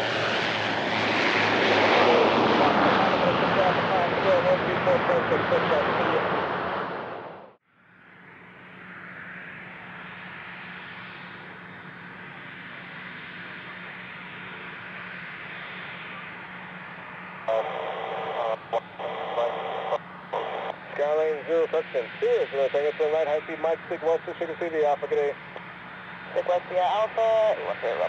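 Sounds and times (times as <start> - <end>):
jet engines rushing: 0.0 - 7.6, 8.2 - 28.0
crackly radio voice: 1.9 - 6.3, 17.5 - 28.0.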